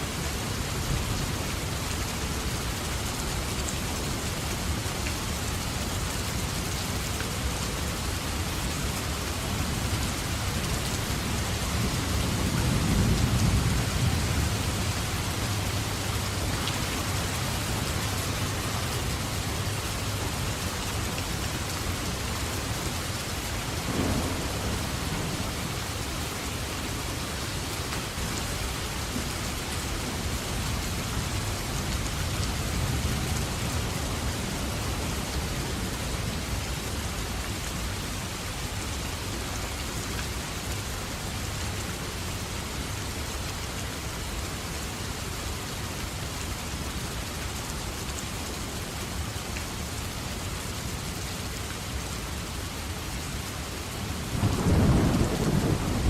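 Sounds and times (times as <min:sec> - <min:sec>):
heavy rain falling: 0:00.0 - 0:56.0
thunder rumbling: 0:23.8 - 0:26.1, 0:54.3 - 0:56.0.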